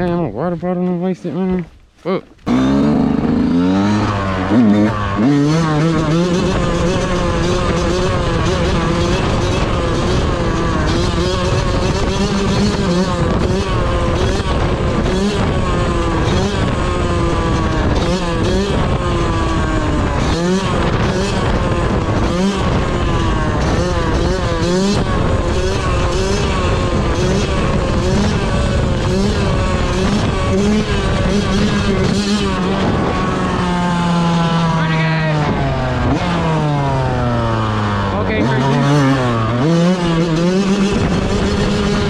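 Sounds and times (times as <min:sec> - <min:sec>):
two-stroke motorcycle engine revving: 0:00.0 - 0:42.0.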